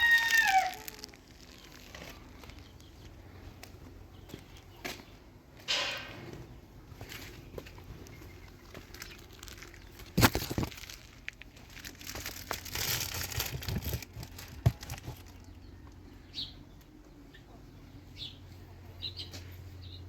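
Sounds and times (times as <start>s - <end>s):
crinkling and rustling: 0.0s - 5.0s, 7.0s - 16.0s.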